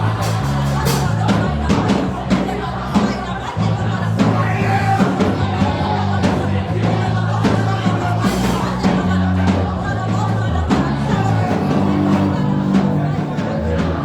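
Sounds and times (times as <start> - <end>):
people singing: 0.0 - 14.0
keyboard or bass chords: 8.8 - 14.0
drum hits: 10.8 - 14.0.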